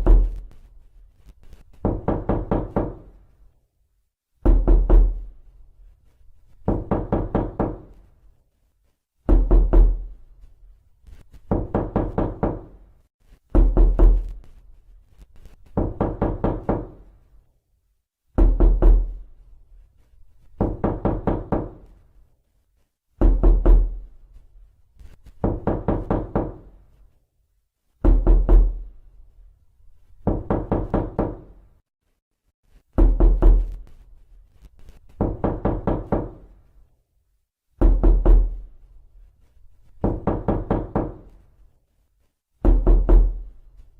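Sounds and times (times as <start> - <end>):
knocking on a door: 0.0 - 0.4, 1.8 - 3.2, 4.4 - 5.3, 6.6 - 8.0, 9.3 - 10.2, 11.4 - 12.8, 13.5 - 14.4, 15.7 - 17.1, 18.3 - 19.2, 20.6 - 21.9, 23.2 - 24.0, 25.4 - 26.8, 28.0 - 28.8, 30.2 - 31.6, 33.0 - 33.8, 35.1 - 36.5, 37.8 - 38.6, 40.0 - 41.4, 42.6 - 43.5.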